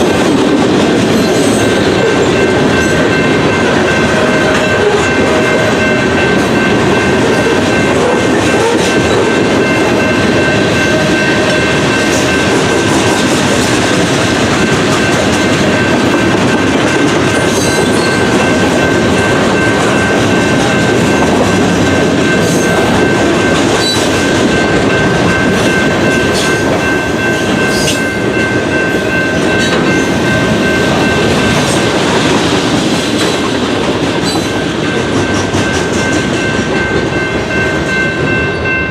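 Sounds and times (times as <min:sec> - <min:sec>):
train cars clattering on rails: 0:00.0 - 0:38.9.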